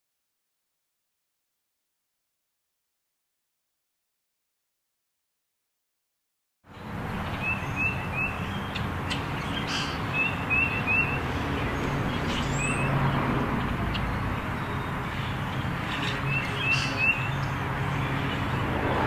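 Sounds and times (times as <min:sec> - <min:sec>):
birds chirping: 0:06.7 - 0:19.0.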